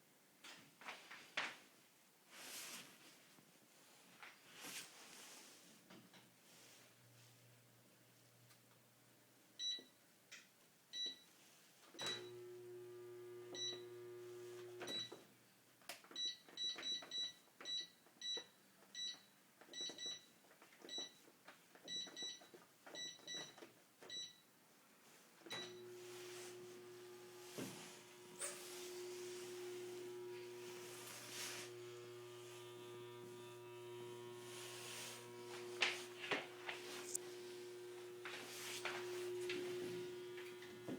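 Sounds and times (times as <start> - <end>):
washing machine control panel beeps: 9.6 - 10.0, 10.9 - 11.3, 12.0 - 12.4, 13.5 - 14.0, 14.8 - 15.2, 16.1 - 20.3, 20.9 - 21.2, 21.8 - 24.5, 25.5 - 25.9
washing machine hum: 25.6 - 40.9.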